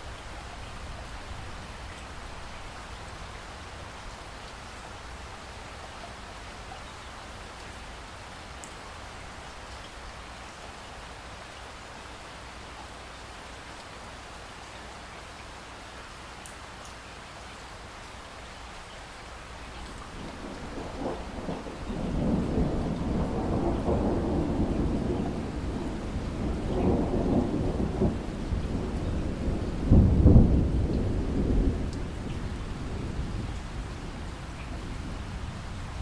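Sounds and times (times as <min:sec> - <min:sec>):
steady rain: 0:00.0 - 0:36.0
rolling thunder: 0:20.0 - 0:36.0.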